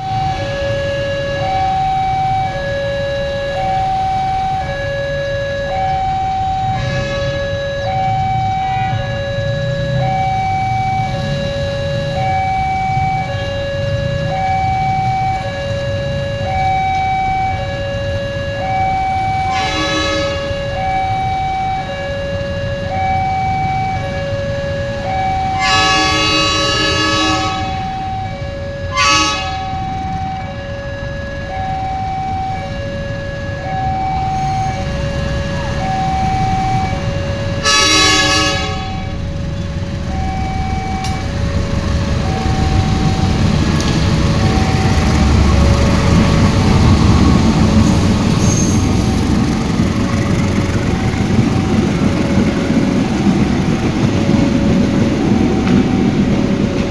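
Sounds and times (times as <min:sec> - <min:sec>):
two-note warning signal: 0:00.0 - 0:47.1
train rumble: 0:00.0 - 0:56.9
train horn blasts: 0:06.7 - 0:07.8, 0:19.4 - 0:20.8, 0:25.5 - 0:28.1, 0:28.9 - 0:29.9, 0:37.6 - 0:39.2.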